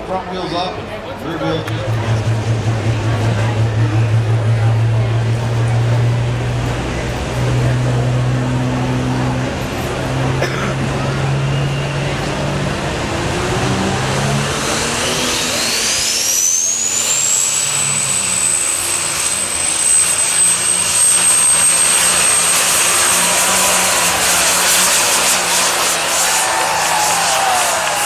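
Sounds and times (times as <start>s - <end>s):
loud tractor engine: 1.0s - 28.0s
turbo whine and whistle: 11.3s - 12.6s, 14.4s - 28.0s.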